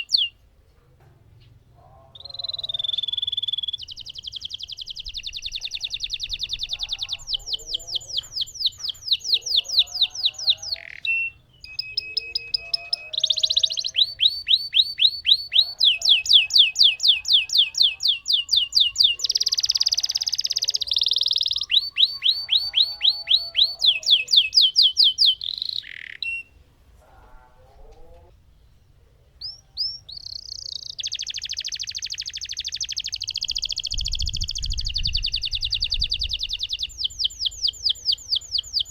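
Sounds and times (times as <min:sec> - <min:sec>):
canary singing rolls: 0:01.0 - 0:28.4.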